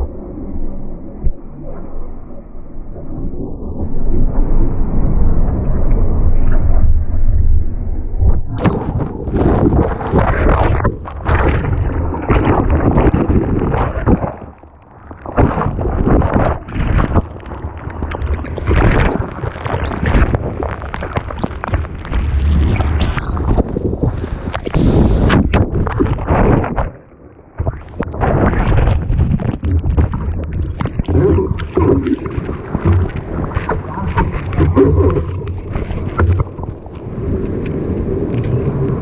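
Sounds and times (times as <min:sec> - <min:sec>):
wind rushing over camera: 0:03.0 - 0:39.0
ocean surf splashing: 0:31.3 - 0:39.0.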